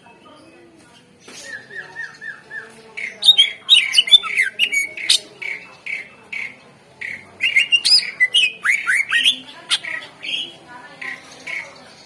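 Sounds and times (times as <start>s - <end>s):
bird singing whistled chirps: 7.4s - 9.4s.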